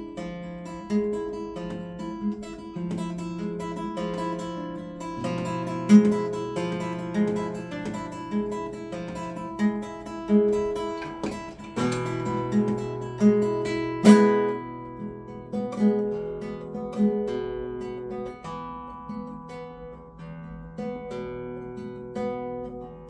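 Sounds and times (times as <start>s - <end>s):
acoustic guitar playing: 0.0s - 23.0s.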